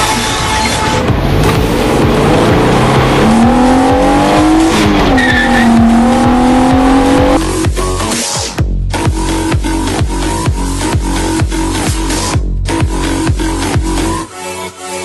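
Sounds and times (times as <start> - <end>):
car engine accelerating: 0.0 - 7.6
dance music with kick drum: 1.1 - 14.0.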